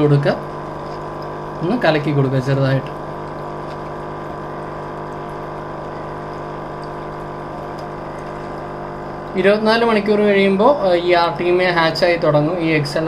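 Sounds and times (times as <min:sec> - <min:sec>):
air pump humming: 0:00.0 - 0:13.0
air bubbling through water: 0:00.4 - 0:09.6.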